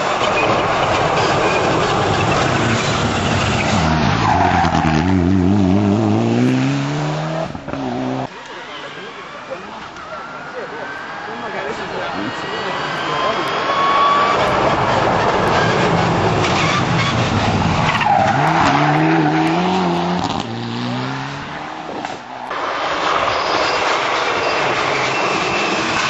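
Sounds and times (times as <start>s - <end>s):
tyres skidding: 0.0s - 26.0s
rally car engine revving: 1.5s - 8.3s, 14.2s - 22.3s.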